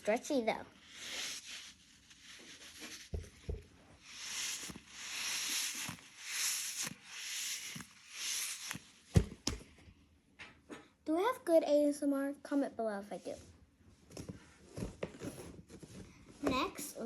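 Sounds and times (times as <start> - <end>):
squishy toy being rubbed: 0.0 - 9.2.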